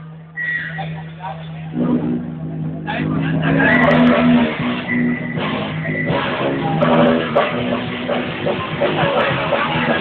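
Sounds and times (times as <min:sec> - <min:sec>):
rock music with guitar: 0:03.4 - 0:10.0.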